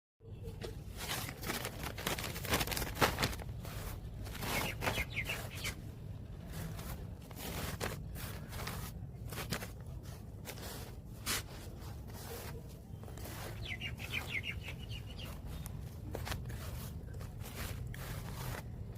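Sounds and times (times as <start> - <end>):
rustling and scraping handling: 0.3 - 18.9
steady low hum: 0.3 - 18.9
bird chirps: 4.3 - 5.8, 13.0 - 16.0.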